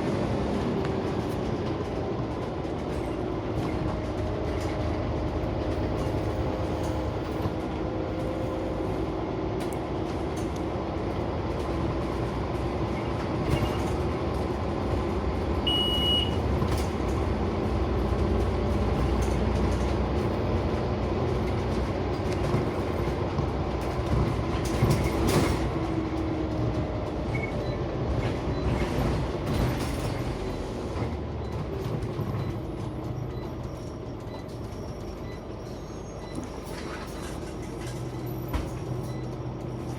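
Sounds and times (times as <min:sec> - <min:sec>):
bus diesel engine running: 0:00.0 - 0:39.9
short high beep: 0:15.7 - 0:16.4.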